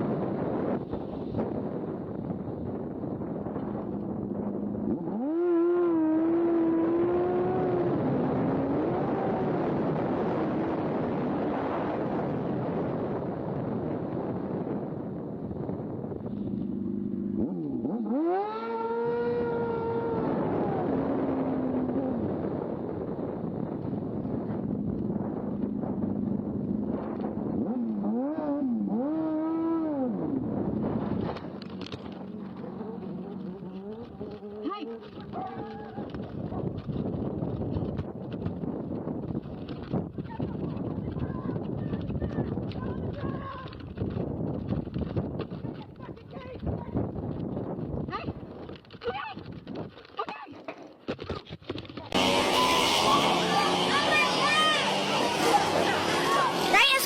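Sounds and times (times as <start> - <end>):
road and wind noise: 0.0 - 57.0
vehicle engine revving: 2.7 - 13.2, 16.2 - 37.7, 52.1 - 57.0.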